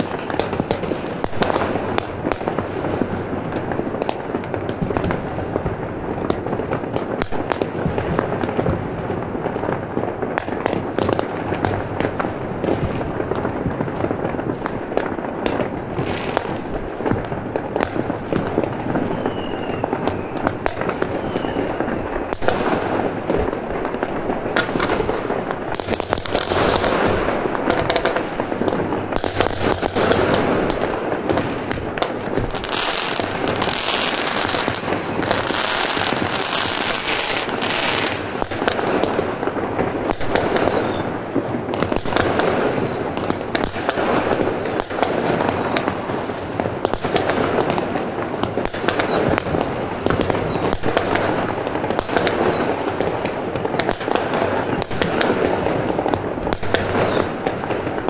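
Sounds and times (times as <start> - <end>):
fireworks bangs and crackling: 0.0 - 58.0
hissing crackle: 19.2 - 41.4.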